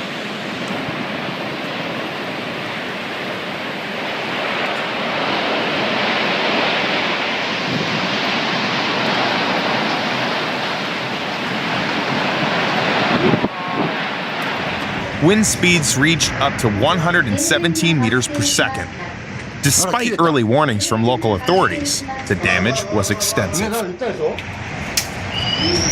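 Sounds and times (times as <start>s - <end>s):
strong wind on microphone: 0.1s - 15.4s.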